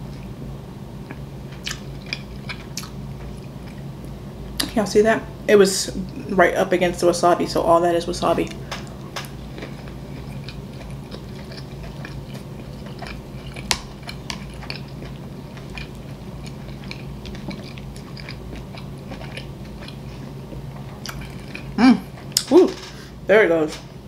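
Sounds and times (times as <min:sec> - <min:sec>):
person chewing food: 0:01.0 - 0:04.7, 0:08.8 - 0:22.5.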